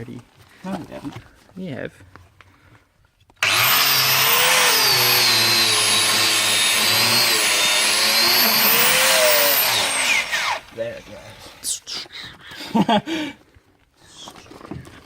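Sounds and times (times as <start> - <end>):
angle grinder cutting metal pipe: 3.4 - 11.1.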